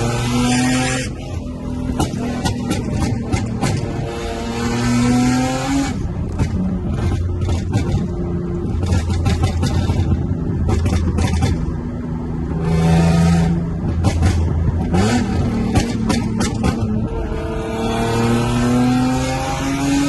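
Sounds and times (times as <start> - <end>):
car engine running: 0.0 - 20.0
exhaust pops and cracks: 1.9 - 4.0, 6.2 - 11.8, 13.9 - 17.0.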